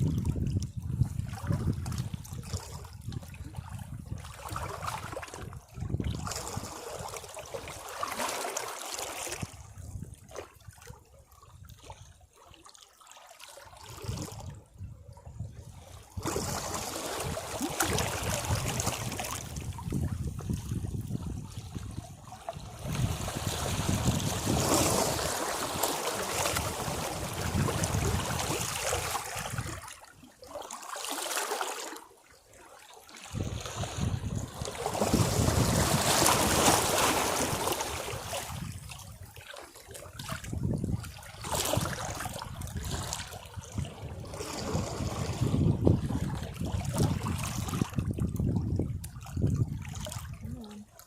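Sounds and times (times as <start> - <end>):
sea waves washing against rocks: 16.2 - 22.0, 22.6 - 29.9, 33.3 - 38.9, 41.4 - 48.0.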